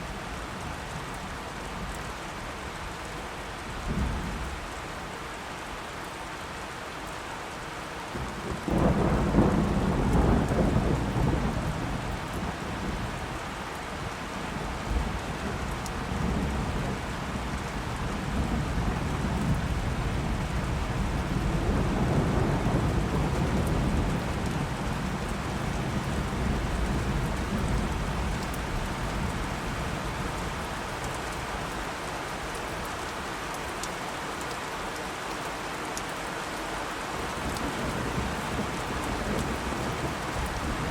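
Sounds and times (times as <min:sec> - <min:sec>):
steady rain falling: 0:00.0 - 0:40.9
thunder rumbling: 0:08.6 - 0:13.2, 0:14.8 - 0:30.7.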